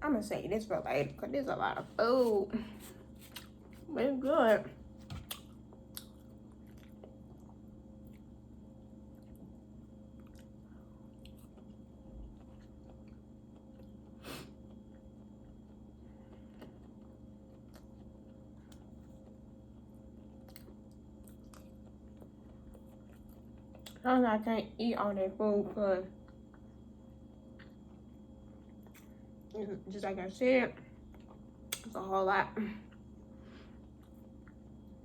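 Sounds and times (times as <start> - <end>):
low steady hum: 0.0 - 35.0
person chewing and mouth smacks: 2.8 - 3.9, 5.0 - 8.4, 9.0 - 24.0, 26.2 - 29.2, 31.0 - 32.0, 33.8 - 34.9.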